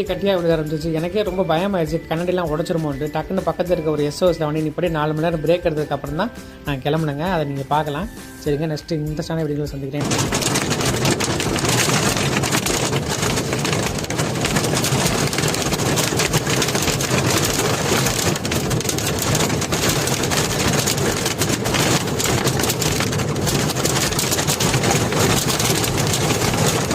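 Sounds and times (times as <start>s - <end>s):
hail pelting a truck cab: 10.0s - 26.9s.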